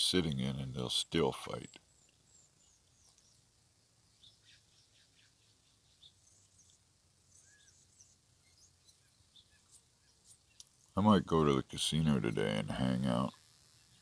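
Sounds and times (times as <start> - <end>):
small birds chirping: 0.2 - 14.0.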